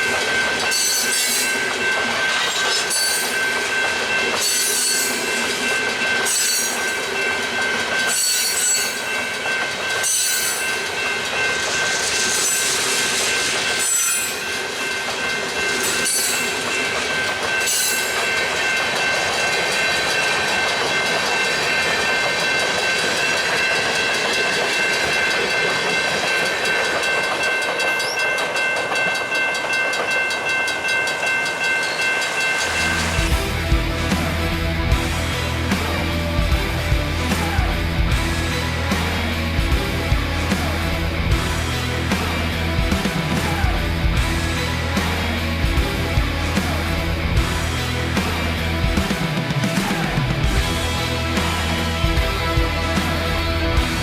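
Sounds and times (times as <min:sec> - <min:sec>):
high ringing tones: 0:00.0 - 0:33.5
freight cars rolling: 0:00.0 - 0:54.0
train wheels clicking over joints: 0:00.0 - 0:54.0.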